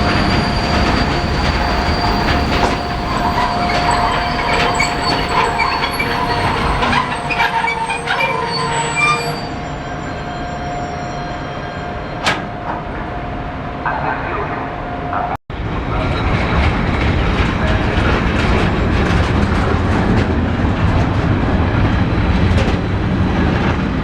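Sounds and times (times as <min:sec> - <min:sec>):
wheels clattering on rails: 0:00.0 - 0:10.4
wheels squealing: 0:00.0 - 0:13.5
freight train rumble: 0:00.0 - 0:24.0.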